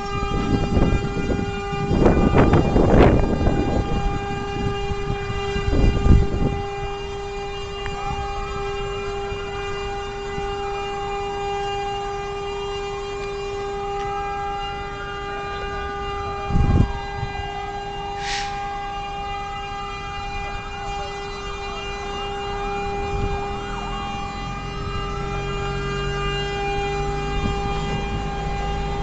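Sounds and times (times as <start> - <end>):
fire engine siren wailing: 0.0 - 29.0
short hiss: 18.2 - 18.6.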